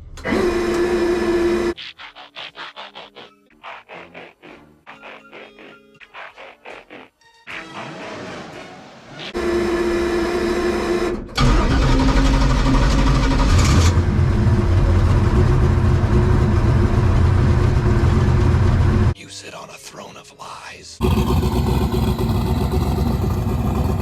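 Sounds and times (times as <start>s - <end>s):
race car engine revving: 9.3s - 19.2s, 21.0s - 24.0s.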